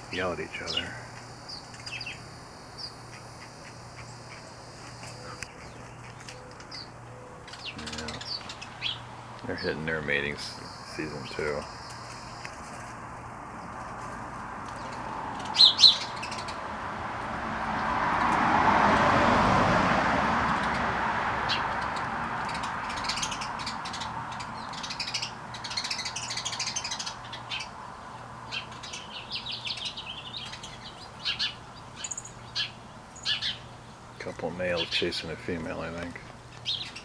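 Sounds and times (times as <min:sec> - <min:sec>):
sparrows chirping: 0:00.0 - 0:18.5, 0:20.4 - 0:37.0.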